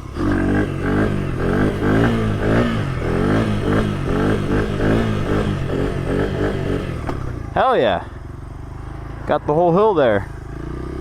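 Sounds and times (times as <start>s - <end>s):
motorbike engine revving hard: 0.0s - 7.8s, 10.2s - 11.0s.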